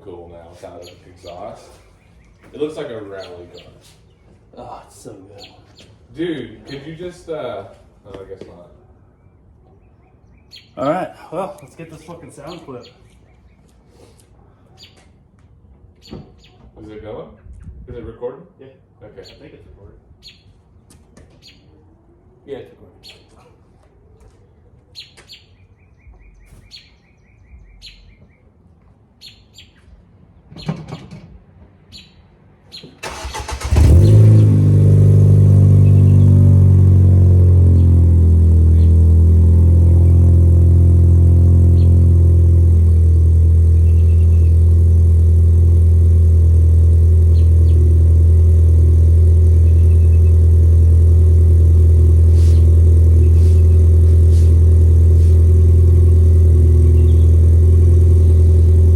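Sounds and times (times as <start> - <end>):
bird chirps: 0.8 - 4.4, 5.3 - 6.0, 9.0 - 10.9, 11.6 - 13.8, 16.0 - 16.6, 19.2 - 19.5, 20.2 - 20.6, 21.3 - 21.8, 23.0 - 23.3, 25.0 - 28.5, 29.2 - 29.9, 31.9 - 33.0, 35.8 - 36.4, 38.7 - 39.0, 41.7 - 42.1, 42.8 - 44.8, 47.2 - 47.9, 49.5 - 50.6, 52.4 - 54.6, 56.8 - 57.5
car engine starting and idling: 33.0 - 58.9.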